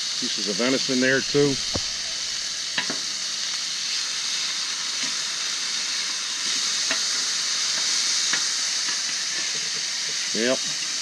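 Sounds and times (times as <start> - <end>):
meat sizzling on a griddle: 0.0 - 11.0.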